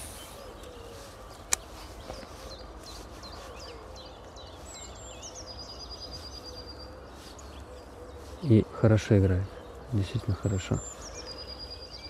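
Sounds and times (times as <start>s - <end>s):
songbirds chirping and singing: 0.0s - 12.0s.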